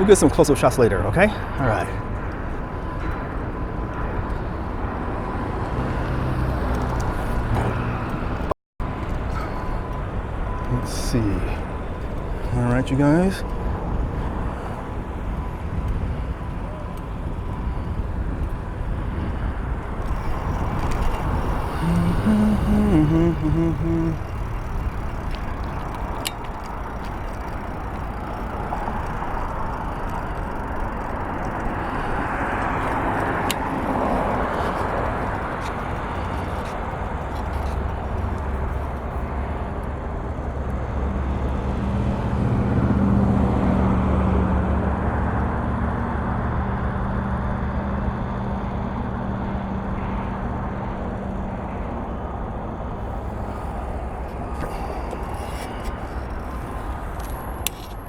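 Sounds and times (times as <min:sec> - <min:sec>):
low engine hum: 0:00.0 - 0:58.0
vehicles driving by: 0:00.0 - 0:58.0.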